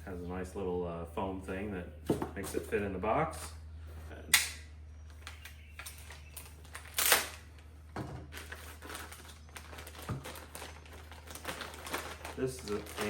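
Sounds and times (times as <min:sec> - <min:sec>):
steady low hum: 0:00.0 - 0:13.0
packaging rustling and clicking: 0:05.2 - 0:13.0.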